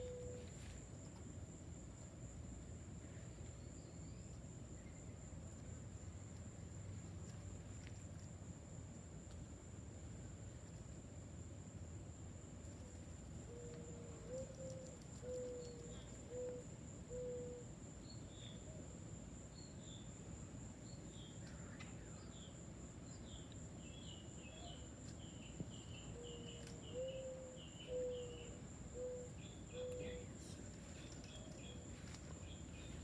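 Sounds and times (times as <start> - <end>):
low soft cooing bird calls: 0.0 - 0.4, 13.5 - 17.7, 26.2 - 31.8
faint high bird chirps: 21.2 - 33.0.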